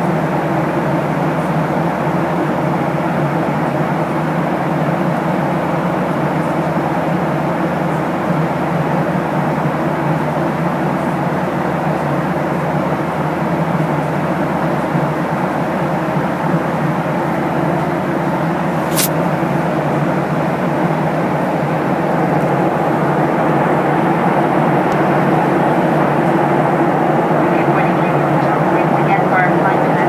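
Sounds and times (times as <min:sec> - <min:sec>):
airplane cabin engine noise: 0:20.7 - 0:30.0.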